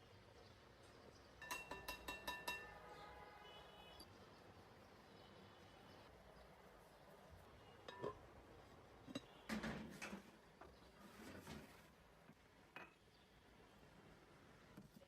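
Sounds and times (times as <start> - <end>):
dishes clattering: 1.4 - 2.7, 7.9 - 8.2
dishes clinking: 1.4 - 2.8, 7.8 - 8.2, 9.0 - 10.2, 12.8 - 13.0.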